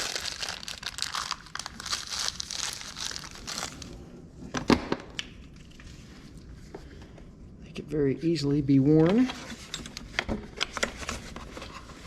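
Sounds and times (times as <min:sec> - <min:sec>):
plastic crinkling and rustling: 0:00.0 - 0:04.0.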